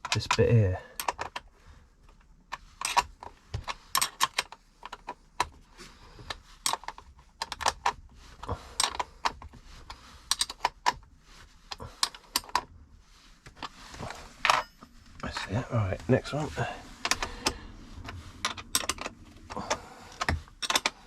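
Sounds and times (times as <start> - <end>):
spanner clicking on metal bolt: 18.5 - 19.1.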